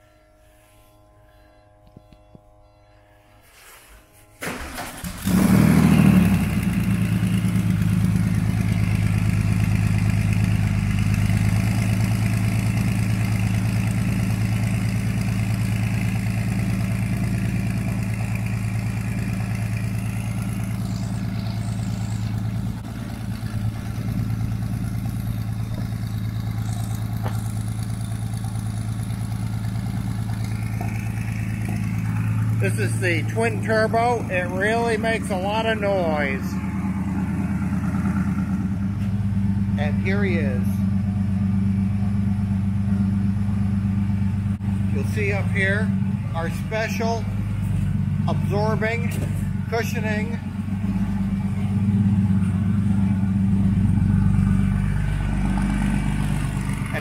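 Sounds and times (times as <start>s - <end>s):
starter motor cranking: 4.4s - 6.2s
car engine revving and idling: 4.5s - 57.0s.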